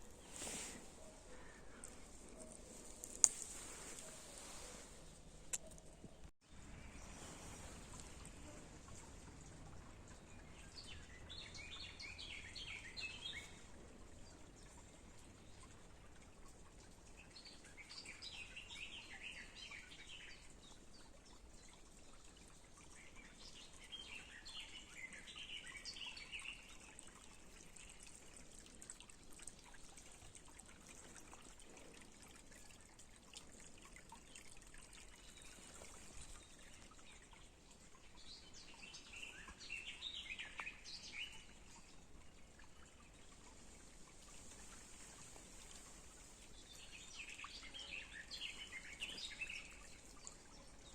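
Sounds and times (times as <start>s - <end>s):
faint outdoor hiss: 0.0s - 50.9s
songbird singing: 10.1s - 13.6s, 38.1s - 43.3s, 44.3s - 50.9s.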